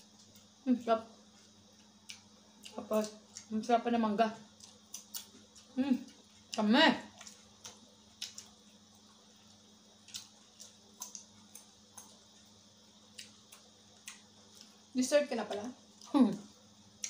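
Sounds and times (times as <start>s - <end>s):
person chewing crunchy fruit: 1.2s - 3.6s, 4.4s - 17.0s.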